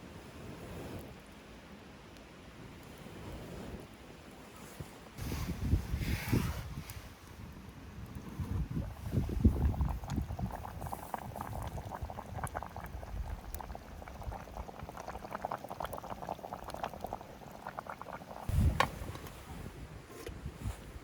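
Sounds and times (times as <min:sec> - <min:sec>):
water bubbling at a boil: 0:05.2 - 0:19.3.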